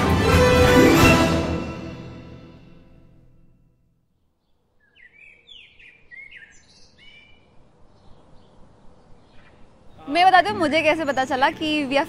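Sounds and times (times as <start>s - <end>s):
birds chirping: 4.2s - 11.8s.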